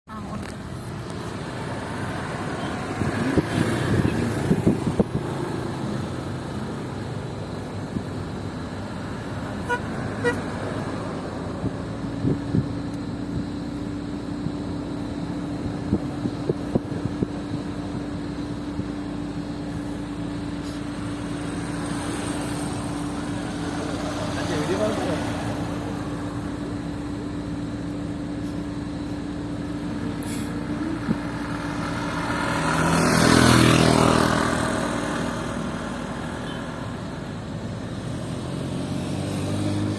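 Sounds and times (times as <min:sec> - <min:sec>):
engine hum: 0:00.0 - 0:39.9.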